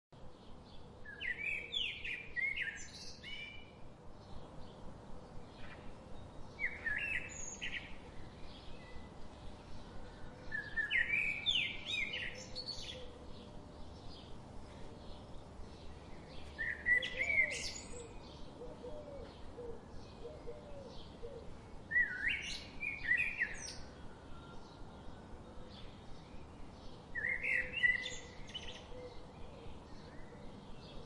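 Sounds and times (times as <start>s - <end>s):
loud songbird phrase: 21.9s - 29.3s.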